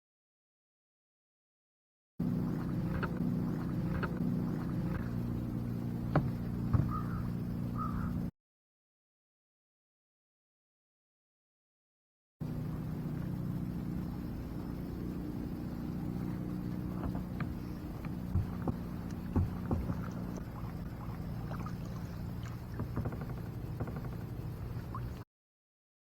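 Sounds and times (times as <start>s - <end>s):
steady low hum: 2.2s - 8.3s, 12.4s - 25.2s
paddle knocking against kayak: 2.4s - 8.1s, 16.0s - 25.2s.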